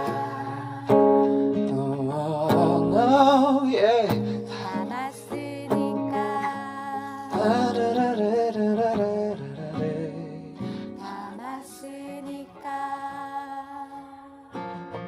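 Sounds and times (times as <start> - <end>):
acoustic guitar: 0.0 - 15.0.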